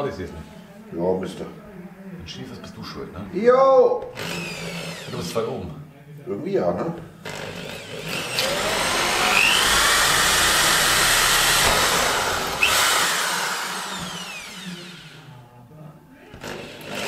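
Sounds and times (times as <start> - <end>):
power drill boring into door: 4.1 - 5.4, 7.2 - 15.3, 16.4 - 17.0.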